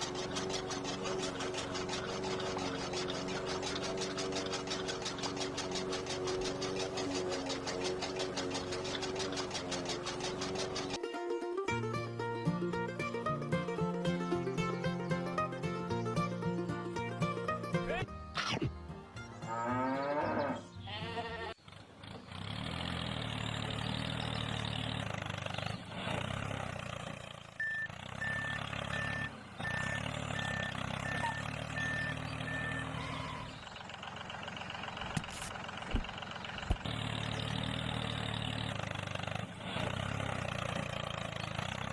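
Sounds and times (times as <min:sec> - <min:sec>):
tractor engine running: 0:00.0 - 0:19.7, 0:21.0 - 0:41.9
reversing beeps: 0:27.6 - 0:33.5.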